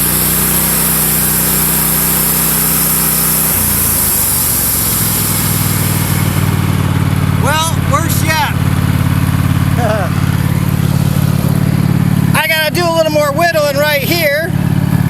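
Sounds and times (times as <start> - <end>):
saw blade hiss: 0.0 - 6.8
sawmill engine running: 0.0 - 15.0.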